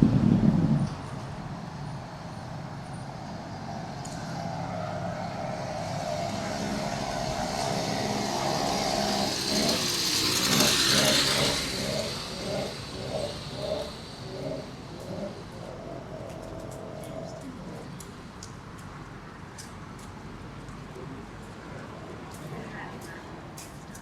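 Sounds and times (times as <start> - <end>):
motor vehicle passing: 0.0 - 24.0
traffic noise: 0.0 - 24.0
pulsing sound: 6.0 - 17.8.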